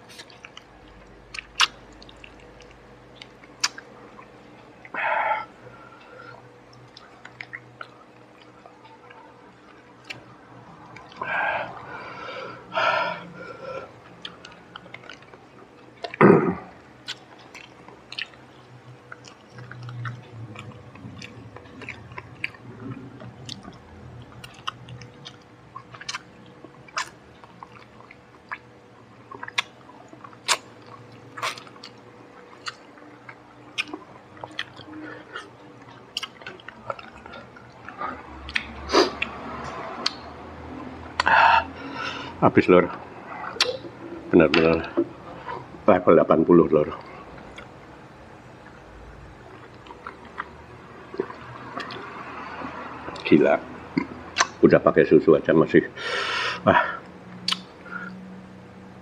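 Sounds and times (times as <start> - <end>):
man chewing and smacking lips: 0.0 - 45.9, 46.8 - 54.6, 57.0 - 58.9
wet mouth clicks: 0.1 - 5.0, 17.0 - 18.4, 19.1 - 26.3, 29.3 - 40.3, 41.1 - 41.4, 43.4 - 43.9, 54.0 - 54.6, 57.4 - 58.2.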